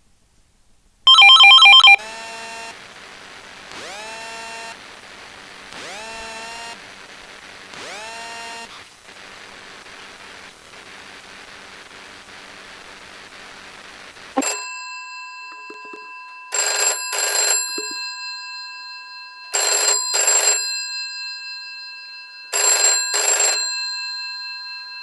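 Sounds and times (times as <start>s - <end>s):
faint steady tone: 0.0s - 16.5s
rising swooping ringtone: 1.1s - 2.7s
electronic phone ring: 1.1s - 14.7s, 15.6s - 18.1s.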